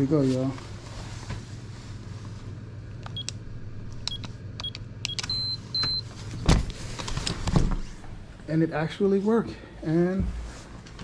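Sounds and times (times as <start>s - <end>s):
keypad press clicks with beeps: 3.1s - 3.4s, 4.1s - 6.0s.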